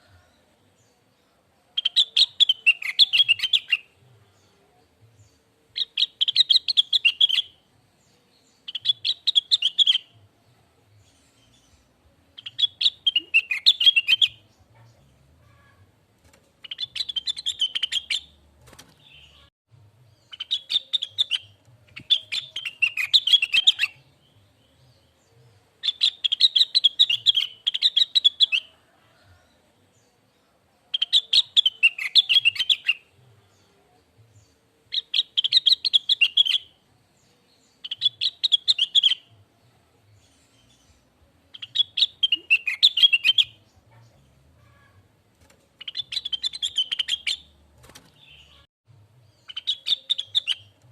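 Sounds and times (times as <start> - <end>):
bird warbling song: 16.6 - 19.5, 40.2 - 45.1, 45.8 - 48.7, 49.4 - 50.9.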